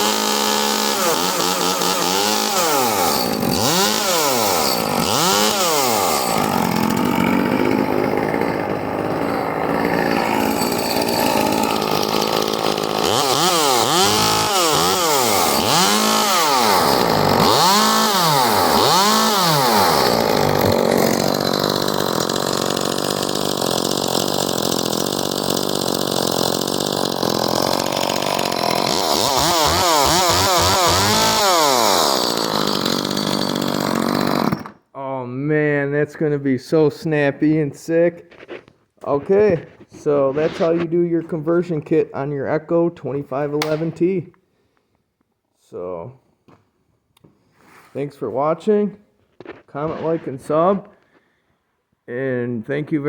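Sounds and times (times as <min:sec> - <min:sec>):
chainsaw revving: 0:00.0 - 0:34.8.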